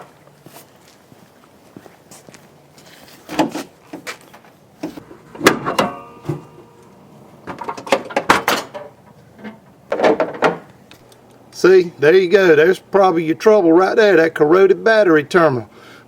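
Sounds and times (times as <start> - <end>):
clunks and knocks: 4.8 - 10.8
brief metallic ring: 5.7 - 6.8.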